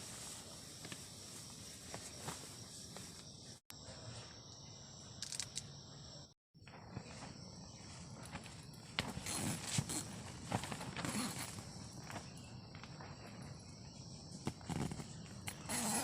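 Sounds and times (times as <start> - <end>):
background hiss: 0.0 - 6.3
insects chirring: 0.0 - 16.0
crunching footsteps: 6.6 - 13.6.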